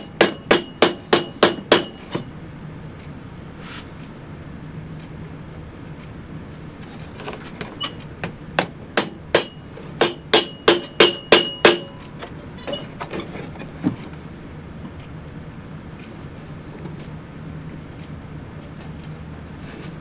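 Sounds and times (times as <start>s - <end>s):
hammer tapping nails: 0.0s - 2.1s, 8.6s - 12.0s.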